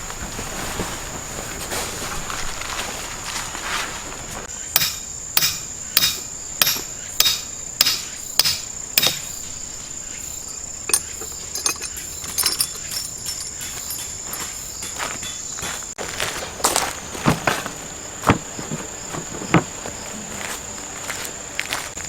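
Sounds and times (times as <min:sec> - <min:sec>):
insects chirring: 0:00.0 - 0:22.0
hammer striking: 0:04.8 - 0:09.3.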